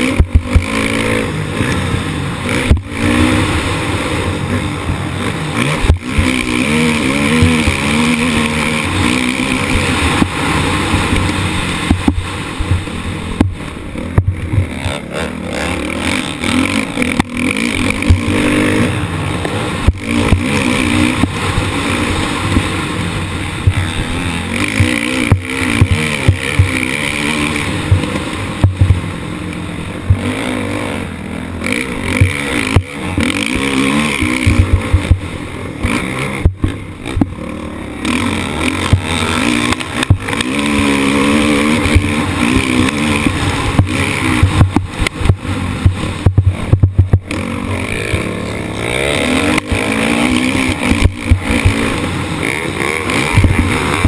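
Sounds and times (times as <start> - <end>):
motorcycle engine revving: 0.0 - 54.0
sharp knocks and jolts: 23.6 - 29.1, 38.1 - 54.0.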